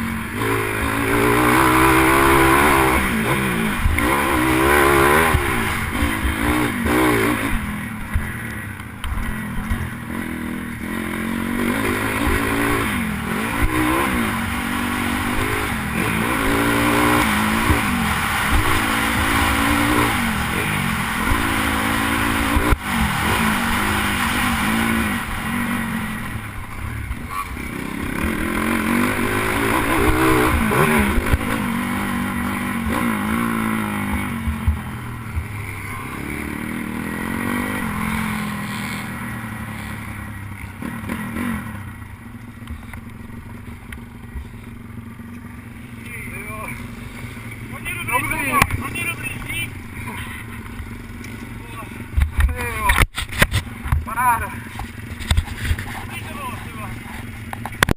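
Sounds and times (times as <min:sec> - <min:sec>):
small motorcycle engine revving: 0:00.0 - 0:43.4.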